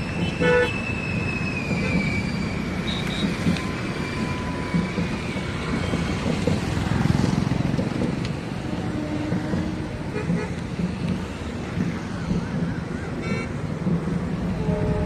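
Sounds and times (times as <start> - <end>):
train wheels rumbling on rails: 0.0 - 15.0
train horn toots: 0.2 - 0.8, 8.6 - 10.6, 14.5 - 15.0.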